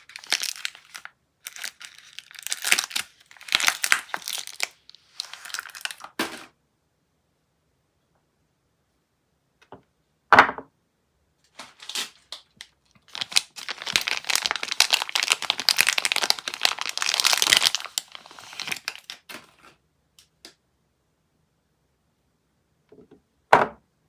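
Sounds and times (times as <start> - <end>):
packaging sharp crack: 0.0 - 6.5, 11.6 - 19.7
wrapper crinkling and tearing: 0.0 - 6.5, 11.5 - 19.8.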